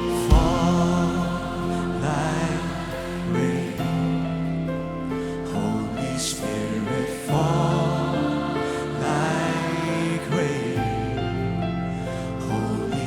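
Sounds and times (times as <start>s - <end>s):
slow worship band music: 0.0s - 13.0s.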